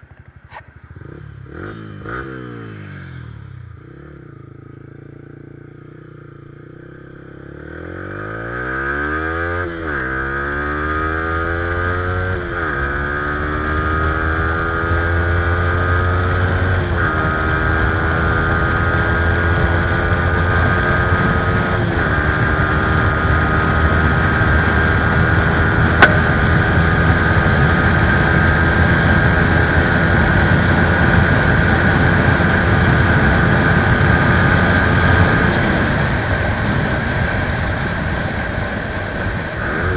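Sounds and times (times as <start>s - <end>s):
motorcycle accelerating: 0.0s - 39.9s
sharp click: 26.0s - 26.4s.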